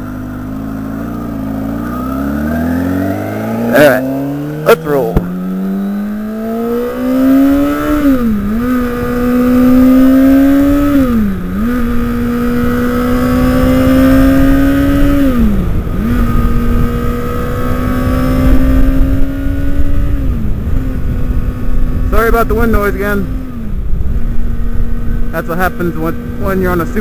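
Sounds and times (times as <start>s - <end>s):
motorcycle engine accelerating: 0.0s - 27.0s
wind buffeting on microphone: 5.2s - 27.0s.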